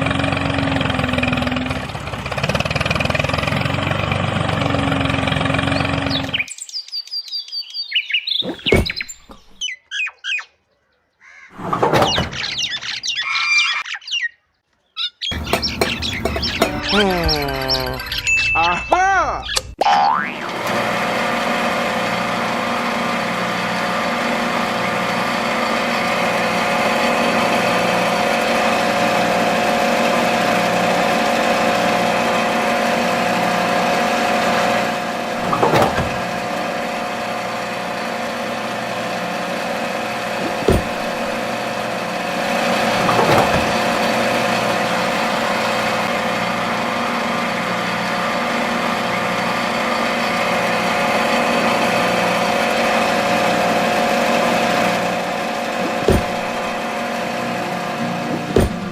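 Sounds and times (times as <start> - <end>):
motor humming: 0.0 - 6.5, 11.6 - 13.1, 15.3 - 18.4, 20.1 - 58.9
short knocks: 40.4 - 41.5, 55.8 - 56.8, 58.3 - 58.9.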